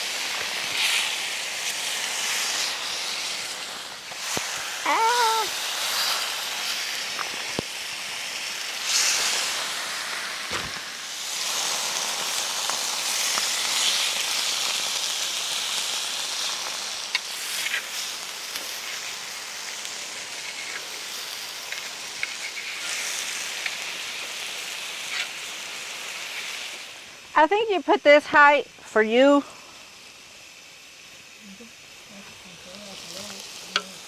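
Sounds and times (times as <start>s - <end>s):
meat sizzling: 0.0s - 34.0s
fat spattering pops: 10.4s - 11.0s.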